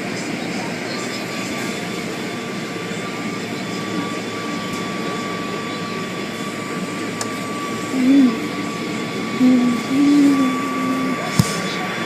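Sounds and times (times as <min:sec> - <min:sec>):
thin steady whine: 0:00.0 - 0:12.0.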